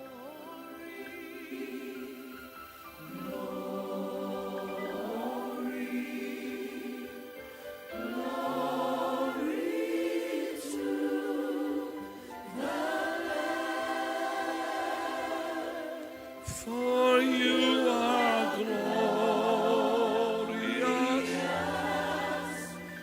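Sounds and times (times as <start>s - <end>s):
choir singing a worship song: 0.0s - 23.0s.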